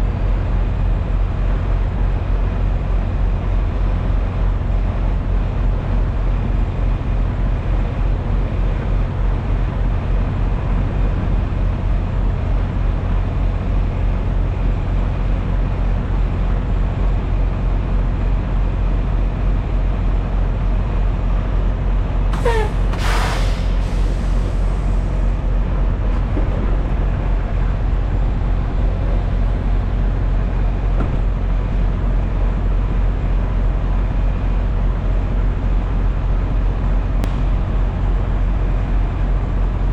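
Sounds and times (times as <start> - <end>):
truck diesel engine droning: 0.0 - 39.9
short squeal sliding down: 22.4 - 24.7
air brake hiss: 22.4 - 25.2.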